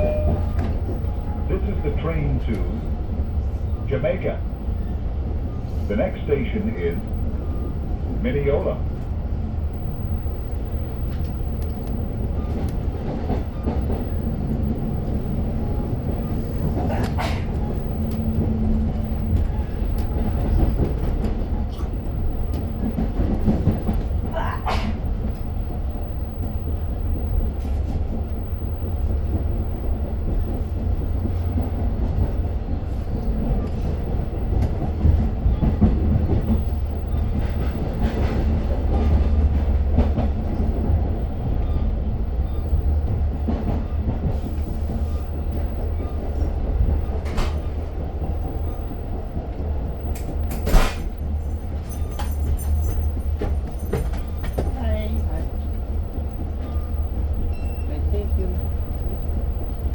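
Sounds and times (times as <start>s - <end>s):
train rumbling and rattling: 0.0s - 59.9s.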